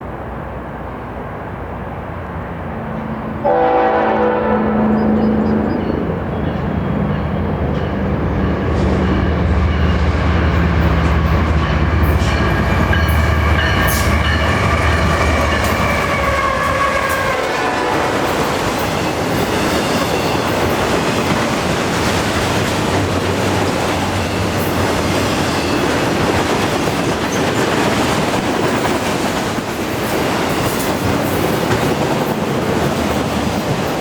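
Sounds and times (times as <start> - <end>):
diesel locomotive engine rumble: 0.0 - 34.0
train air horn: 3.4 - 5.8, 13.6 - 18.5.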